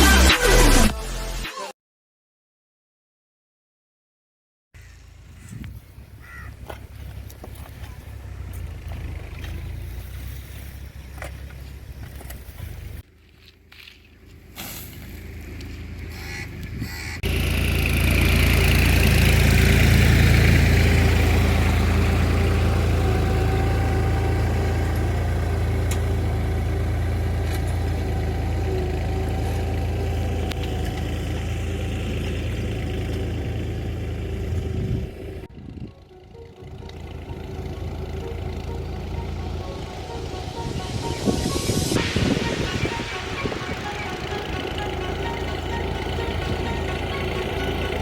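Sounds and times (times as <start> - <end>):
tractor diesel engine running: 4.8 - 48.0.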